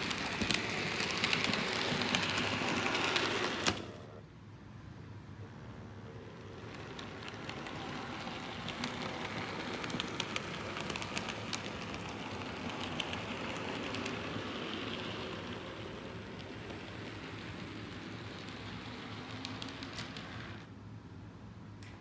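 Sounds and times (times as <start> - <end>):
wheels clicking over rail joints: 0.0 - 4.0, 6.4 - 20.7
model train rolling rumble: 0.0 - 4.2, 5.8 - 20.8.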